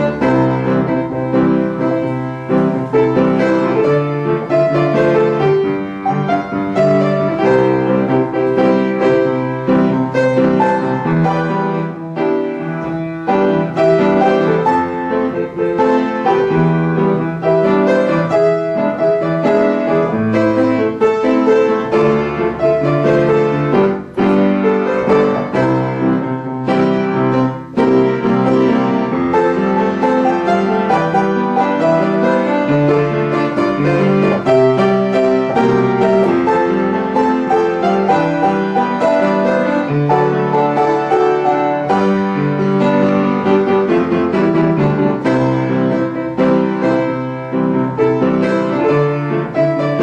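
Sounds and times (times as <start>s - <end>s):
solo piano pop song: 0.0s - 50.0s.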